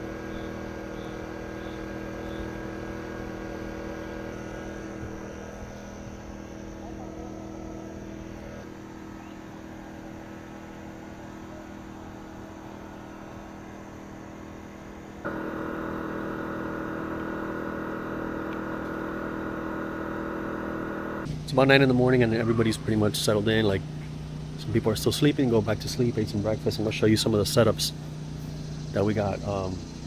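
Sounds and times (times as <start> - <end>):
steady machine hum: 0.0 - 21.3.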